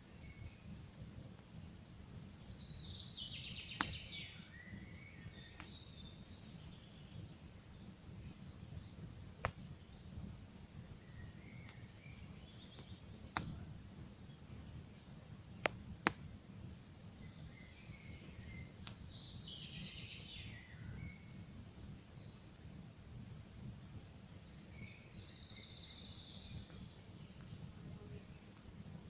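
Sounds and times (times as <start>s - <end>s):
songbirds chirping: 0.0s - 29.0s
bird trilling song: 0.2s - 10.2s, 10.8s - 16.3s, 17.0s - 29.0s
campfire crackling: 3.7s - 4.4s, 8.9s - 10.8s, 11.7s - 17.0s
fire popping sharply: 12.8s - 13.7s.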